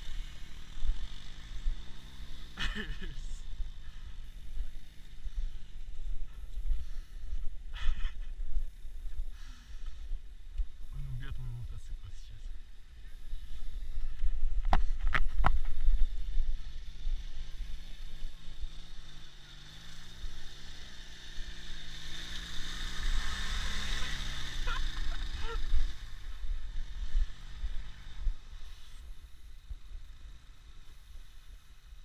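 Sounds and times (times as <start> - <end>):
wind rumble on microphone: 12.5 - 18.5
motorcycle engine labouring: 12.6 - 31.5.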